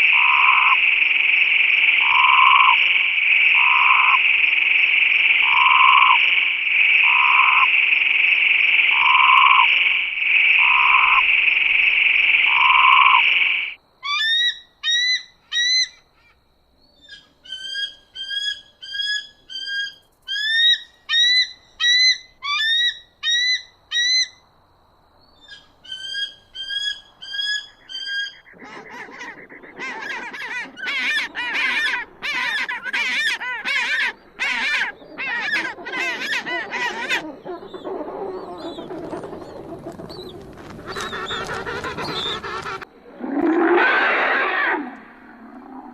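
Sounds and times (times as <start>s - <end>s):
large bird honking: 0.0s - 13.8s, 26.8s - 37.8s, 38.4s - 42.9s
bird sharply rising calls: 0.0s - 14.5s, 25.5s - 45.9s
trilling frog chorus: 0.0s - 16.2s, 25.4s - 45.9s.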